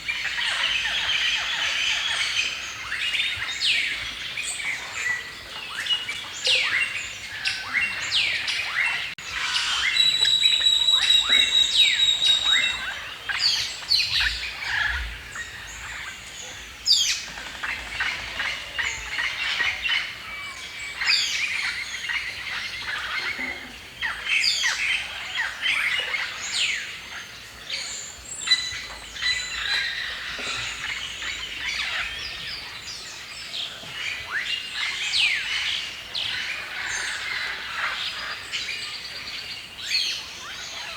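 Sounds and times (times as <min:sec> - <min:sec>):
songbirds chirping and singing: 0:00.0 - 0:40.9
bird long thin whistle: 0:09.5 - 0:12.9.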